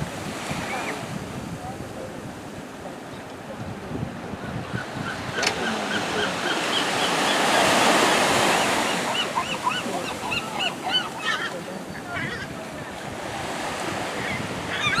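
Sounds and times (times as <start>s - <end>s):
surf washing up the shore: 0.0s - 15.0s
gull calls: 4.8s - 13.0s, 14.0s - 15.0s.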